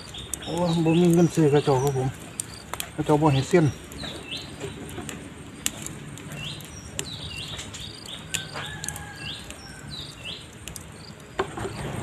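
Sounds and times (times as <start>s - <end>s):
bird chirping: 0.0s - 12.0s
sharp clicks: 3.9s - 11.4s.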